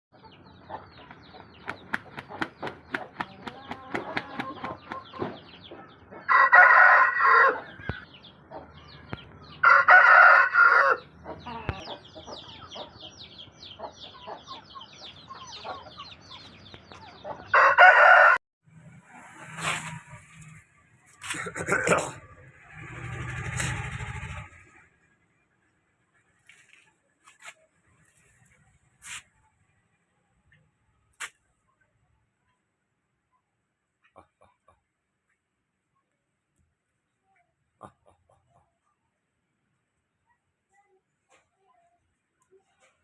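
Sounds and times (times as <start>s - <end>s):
chickens clucking and chirping: 0.1s - 6.9s, 7.5s - 18.2s, 37.2s - 39.2s
rooster crowing: 6.3s - 7.7s, 9.6s - 11.1s, 17.5s - 18.4s.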